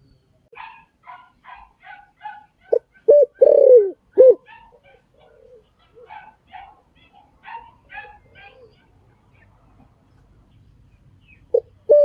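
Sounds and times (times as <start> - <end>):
dove cooing: 1.8 - 8.9, 11.5 - 12.0.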